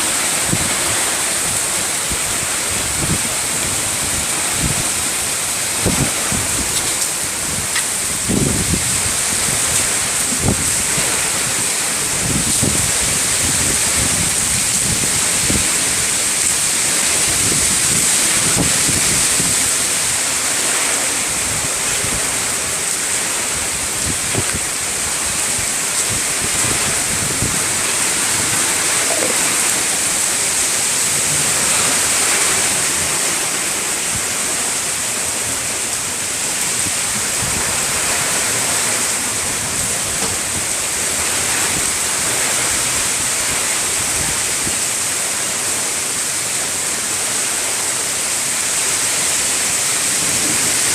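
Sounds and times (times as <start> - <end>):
wind buffeting microphone: 0.0 - 34.6, 50.0 - 50.9
heavy rain pouring: 0.0 - 50.9.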